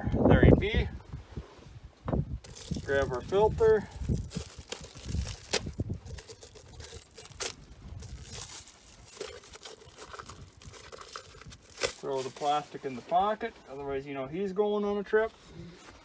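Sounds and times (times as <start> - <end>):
plastic wrapping crinkling: 2.4 - 13.1.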